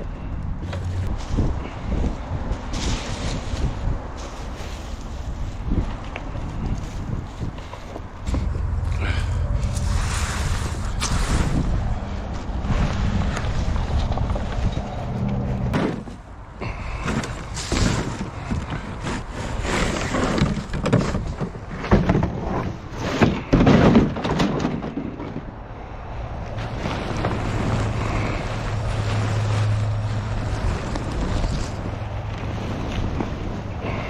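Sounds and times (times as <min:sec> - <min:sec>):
engine idling: 0:08.2 - 0:11.1
loud cracking and rustling knocks: 0:15.7 - 0:16.2, 0:17.0 - 0:25.6.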